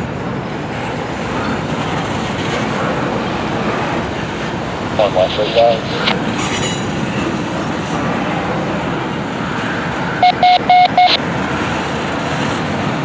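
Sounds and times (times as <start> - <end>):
train wheels rumbling on rail: 0.0 - 10.2, 11.1 - 13.0
short electronic beeps: 10.2 - 11.2.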